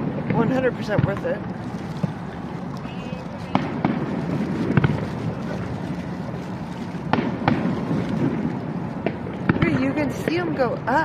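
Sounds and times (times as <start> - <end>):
steady noisy background: 0.0 - 11.0
fireworks bangs: 3.4 - 5.5, 7.0 - 10.5.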